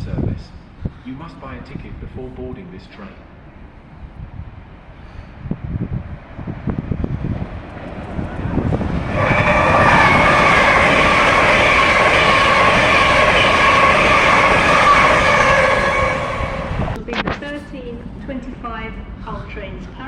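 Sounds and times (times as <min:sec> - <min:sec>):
train wheels clattering: 0:07.5 - 0:17.0
loud steady held tones: 0:09.2 - 0:17.0.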